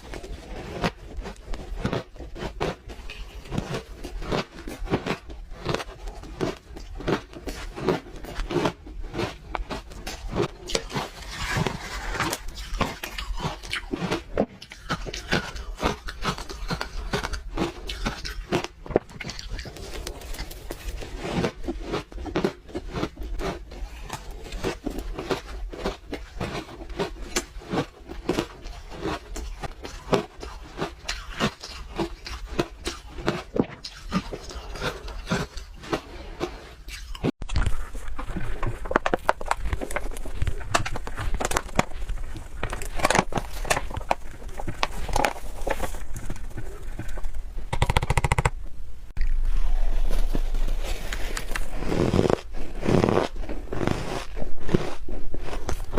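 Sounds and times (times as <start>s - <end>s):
ice crunching being chewed: 0.0s - 47.3s, 49.2s - 55.9s.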